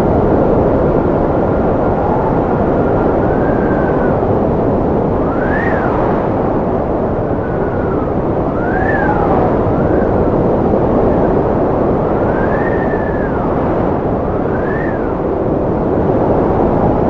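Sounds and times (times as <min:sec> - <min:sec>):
strong wind whistling: 0:00.0 - 0:17.0.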